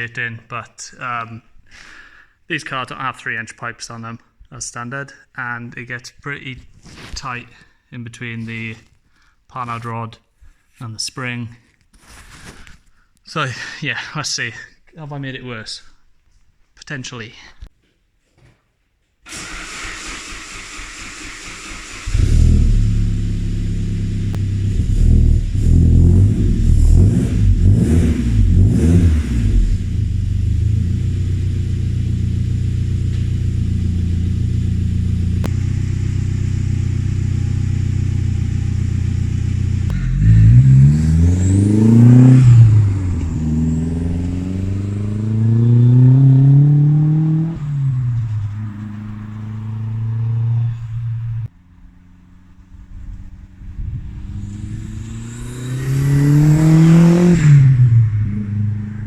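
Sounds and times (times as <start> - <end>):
car engine idling and revving: 19.3 - 59.0.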